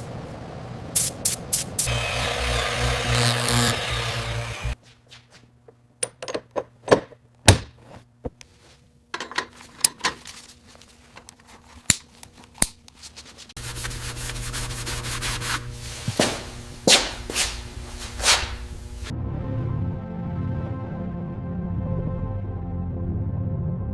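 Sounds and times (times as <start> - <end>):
tools tapping and knocking: 5.6 - 8.4, 9.1 - 10.4
steady low hum: 13.6 - 19.1.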